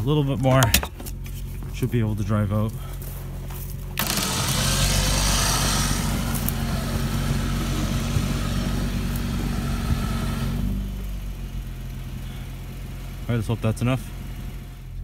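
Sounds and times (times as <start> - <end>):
tires churning in snow: 1.2 - 15.0
truck engine revving: 4.0 - 15.0.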